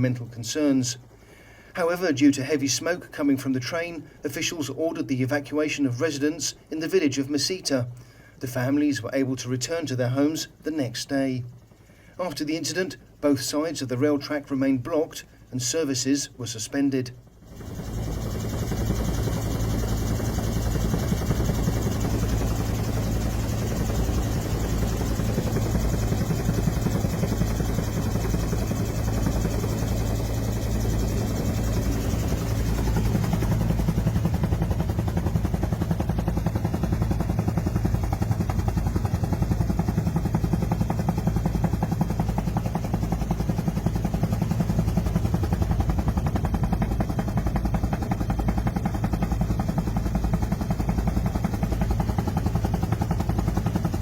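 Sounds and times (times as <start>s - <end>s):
helicopter rotor chop: 8.5s - 54.0s.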